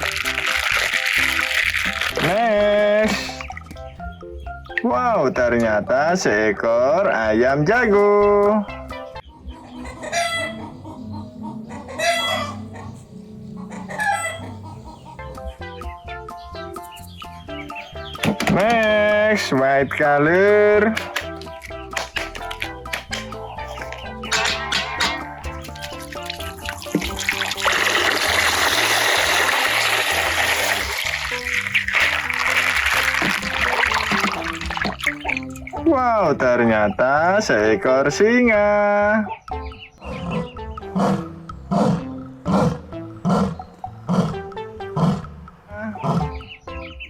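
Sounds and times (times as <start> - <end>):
water running: 0.0 - 4.0, 18.2 - 36.8
low music bed: 0.0 - 47.0
rooster crowing: 9.7 - 14.6
plucked musical notes: 15.2 - 28.8, 29.4 - 38.4.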